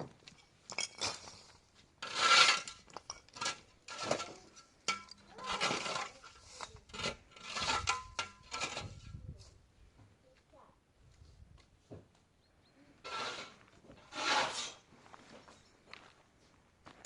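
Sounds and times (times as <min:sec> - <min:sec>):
scraping strokes: 0:01.1 - 0:09.5, 0:13.0 - 0:14.9.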